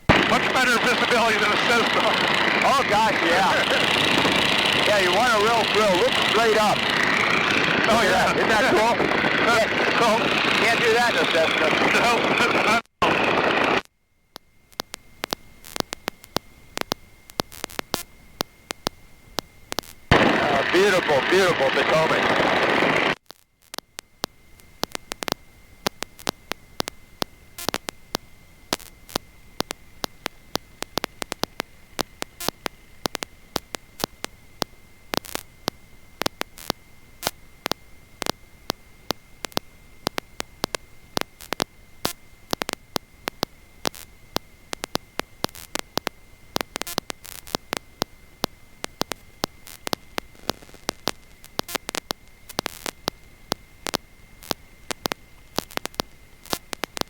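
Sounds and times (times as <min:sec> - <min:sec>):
high-pitched whine: 0:00.0 - 0:13.8, 0:15.0 - 0:23.2
faint static hiss: 0:00.0 - 0:57.0
sharp static clicks: 0:00.0 - 0:57.0.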